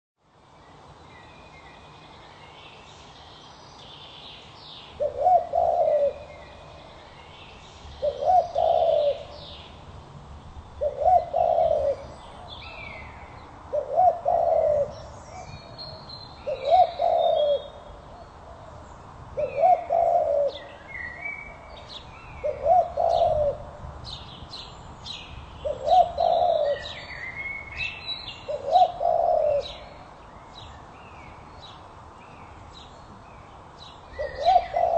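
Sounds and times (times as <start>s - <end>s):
dove cooing: 5.0s - 6.9s, 8.0s - 9.6s, 10.8s - 18.8s, 19.4s - 23.8s, 25.6s - 27.1s, 28.5s - 30.1s, 34.2s - 34.9s
small birds chirping: 24.0s - 34.9s.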